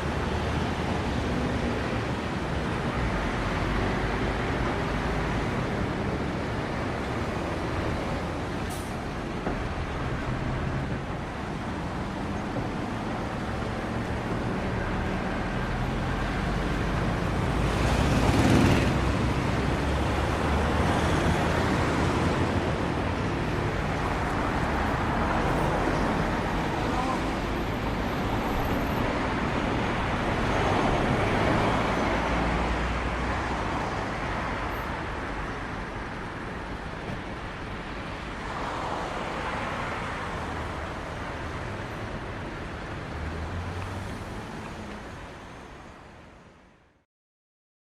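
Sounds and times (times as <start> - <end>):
road traffic noise: 0.0 - 47.0
vehicle passing loudly: 15.9 - 27.1.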